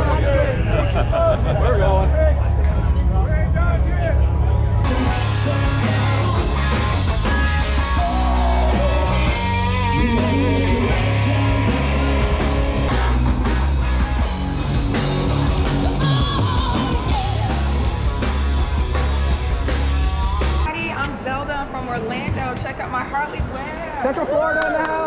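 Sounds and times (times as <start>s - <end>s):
drums: 0.8s - 23.7s
electric guitar: 4.6s - 20.7s
rock music: 4.6s - 20.8s
heavy bass beat: 4.8s - 20.7s
person singing: 4.9s - 12.4s.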